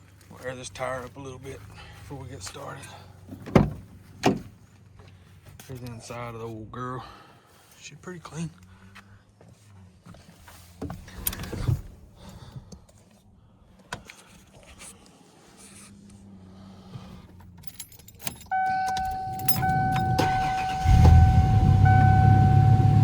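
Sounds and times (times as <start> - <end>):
keys jangling: 17.5 - 20.8
truck engine starting and running: 18.2 - 23.0
truck warning buzzer: 18.5 - 23.0.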